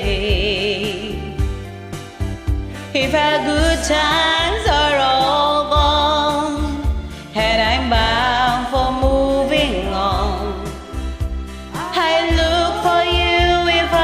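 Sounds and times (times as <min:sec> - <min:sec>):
karaoke backing track: 0:00.0 - 0:14.0
person singing with vibrato: 0:02.7 - 0:14.0.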